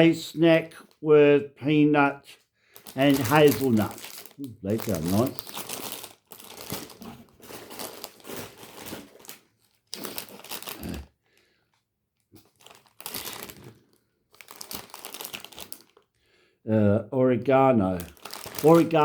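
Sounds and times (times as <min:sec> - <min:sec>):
plastic wrappers crinkling: 0:02.7 - 0:11.1, 0:12.4 - 0:16.1, 0:17.9 - 0:19.0.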